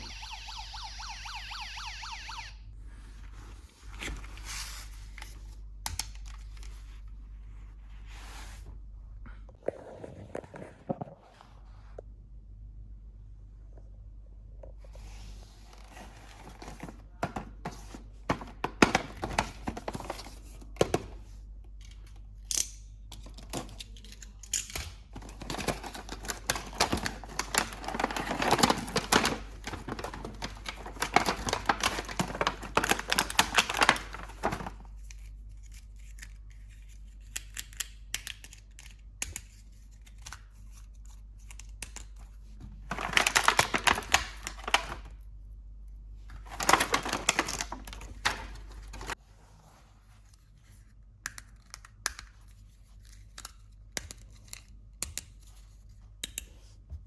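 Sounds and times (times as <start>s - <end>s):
plastic and cardboard rustling: 0.0s - 8.7s, 14.8s - 21.4s, 25.1s - 37.1s, 39.7s - 45.2s, 46.3s - 50.9s.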